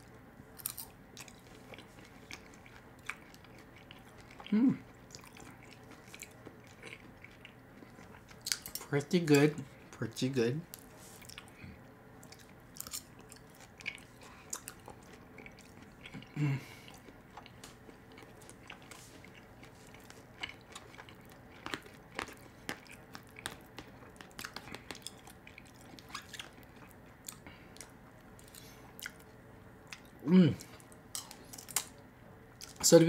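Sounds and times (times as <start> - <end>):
person chewing food: 0.0 - 10.0, 10.7 - 32.8
person humming: 4.5 - 4.8.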